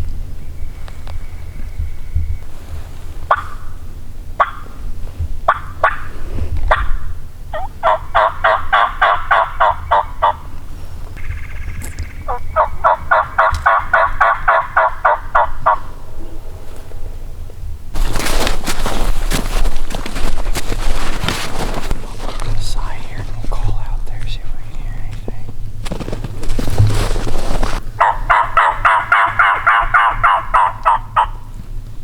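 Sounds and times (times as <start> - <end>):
turkey yelping: 4.4 - 4.7, 5.5 - 6.1, 6.7 - 10.6, 12.3 - 16.0, 28.0 - 31.5.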